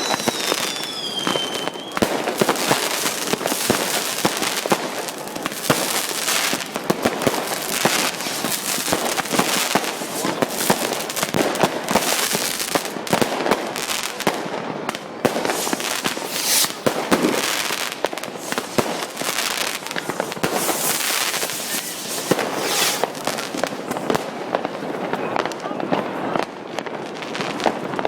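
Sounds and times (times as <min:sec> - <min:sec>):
fireworks cracking and banging: 0:00.0 - 0:28.0
hissing crackling bursts: 0:02.1 - 0:12.9, 0:15.3 - 0:24.2.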